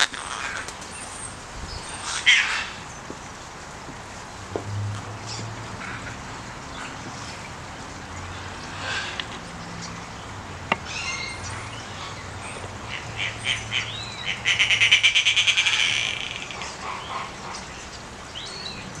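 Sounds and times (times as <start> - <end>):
bird chirps and sweeping calls: 0.2 - 3.1, 8.2 - 19.0.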